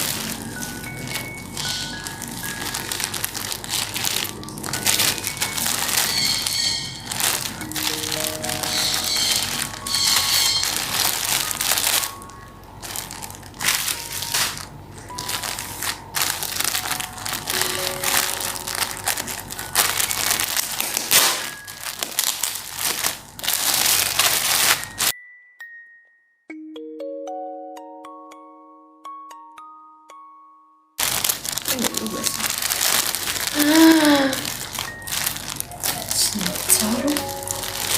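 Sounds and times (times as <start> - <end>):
packaging crinkling: 0.0 - 25.1, 31.0 - 37.9
soft piano music: 0.0 - 37.9.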